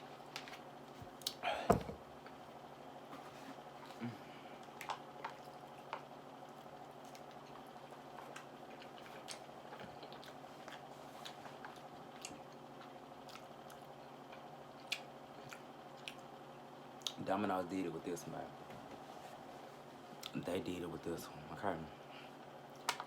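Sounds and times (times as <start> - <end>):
steady low hum: 0.0 - 23.0
person chewing with lip smacking: 6.6 - 16.3, 17.0 - 17.2.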